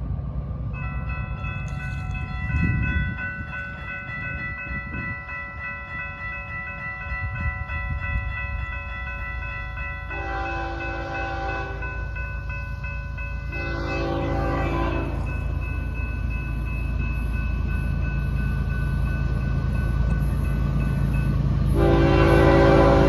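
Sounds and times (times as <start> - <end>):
locomotive air horn blasts: 10.1 - 11.8, 13.6 - 15.3, 21.8 - 23.0.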